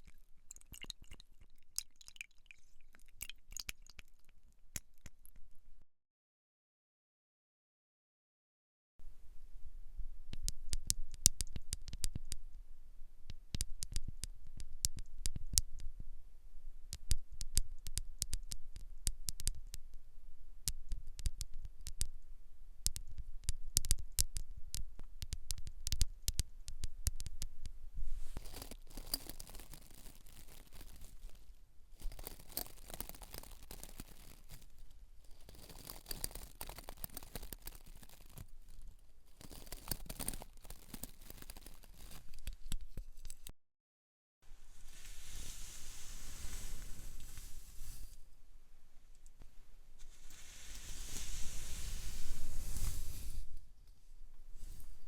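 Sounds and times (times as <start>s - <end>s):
soft rubbing hiss: 27.9s - 42.4s, 44.4s - 55.0s
crisp clicks and scratches: 28.4s - 43.5s.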